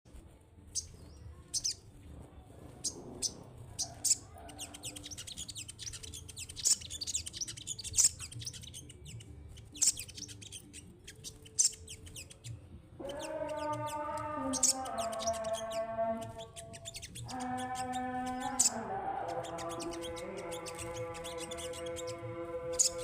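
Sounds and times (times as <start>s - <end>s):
songbird chirping: 0.2s - 23.0s.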